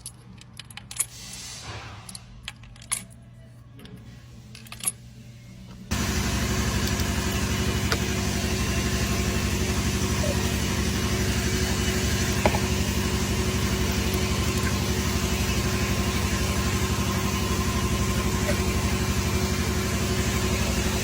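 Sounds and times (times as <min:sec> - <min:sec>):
car engine idling: 0:05.9 - 0:21.0.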